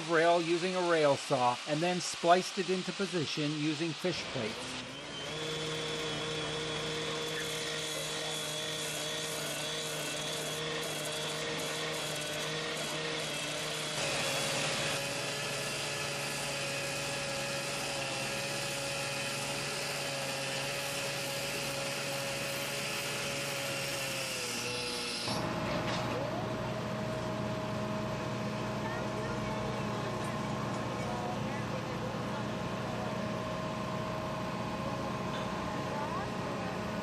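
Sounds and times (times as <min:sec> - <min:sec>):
rail saw cutting steel: 0:00.0 - 0:28.8.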